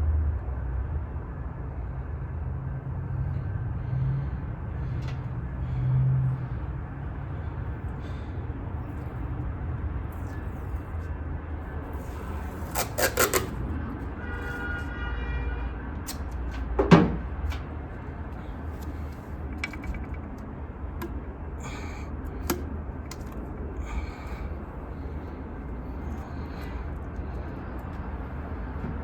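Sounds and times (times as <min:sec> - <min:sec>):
squeaky scrape: 0:10.2 - 0:11.1, 0:11.7 - 0:15.0
tools clicking and knocking: 0:18.8 - 0:21.2, 0:22.2 - 0:23.5.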